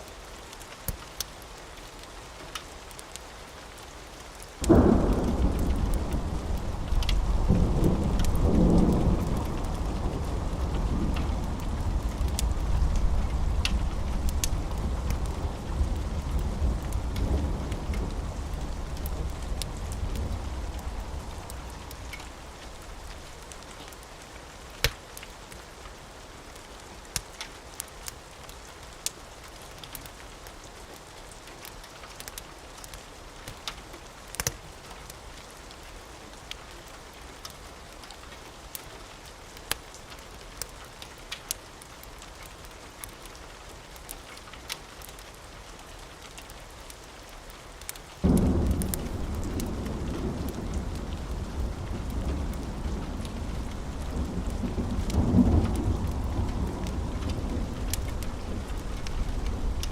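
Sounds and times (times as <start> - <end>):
steady rain: 0.0 - 59.9
sharp crackles: 4.2 - 24.1, 46.3 - 59.9
thunder rumble: 4.6 - 23.6, 48.2 - 59.9.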